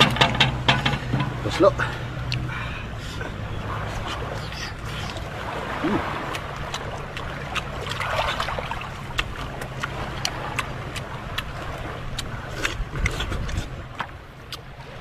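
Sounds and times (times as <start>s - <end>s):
steady low hum: 0.0s - 15.0s
crunching and chewing food: 5.9s - 14.7s.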